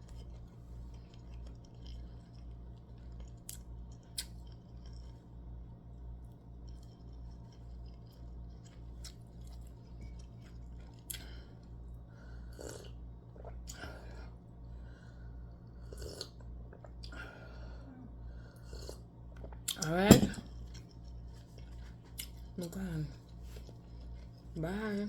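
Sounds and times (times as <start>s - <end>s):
person chewing: 0.0s - 5.3s, 6.6s - 11.7s, 12.5s - 14.1s, 15.8s - 17.2s, 18.6s - 19.8s, 20.5s - 24.6s.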